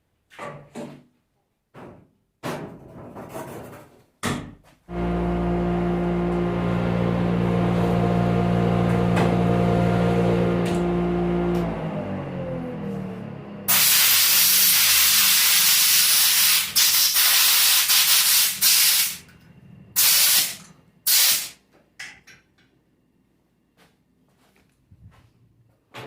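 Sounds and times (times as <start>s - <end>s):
electric motor humming: 4.9s - 15.3s.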